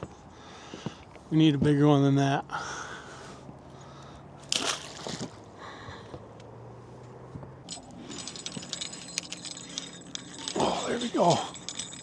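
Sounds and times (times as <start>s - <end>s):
light metallic jingling: 7.0s - 12.0s.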